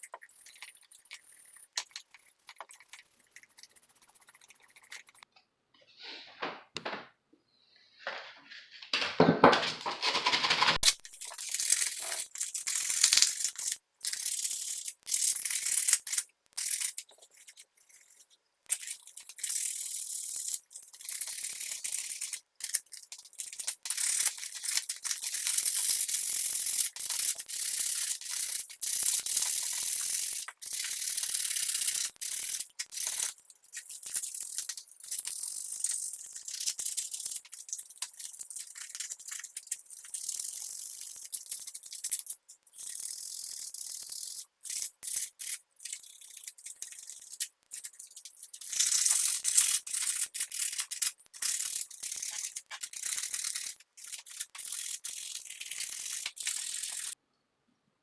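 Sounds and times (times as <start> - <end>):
stiff brush scrubbing: 0.0 - 5.2.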